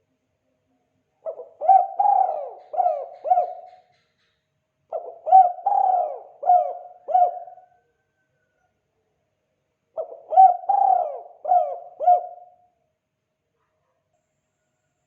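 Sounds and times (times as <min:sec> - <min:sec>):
dove cooing: 0:01.2 - 0:03.9, 0:04.9 - 0:07.8, 0:10.0 - 0:12.7.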